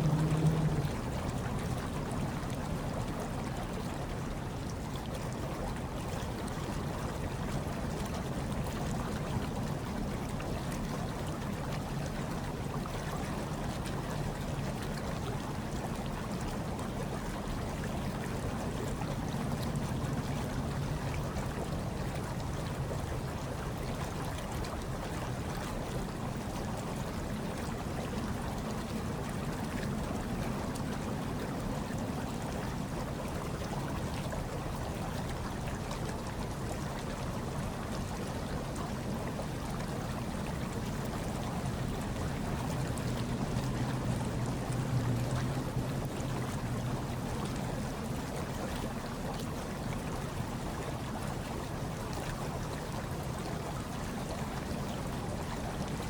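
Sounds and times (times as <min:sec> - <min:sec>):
low rumble: 0:00.0 - 0:01.2
hot tub water bubbling: 0:00.0 - 0:56.0.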